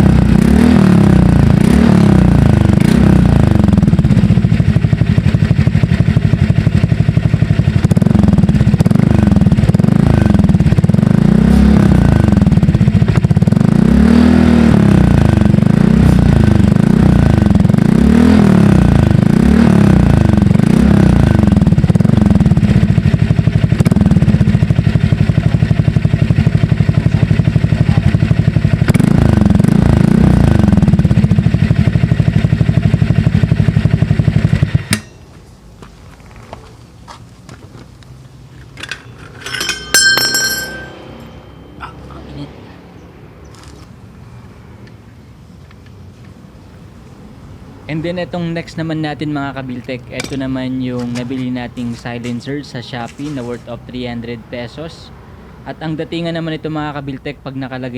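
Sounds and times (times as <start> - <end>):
scooter engine revving: 0.0 - 35.0.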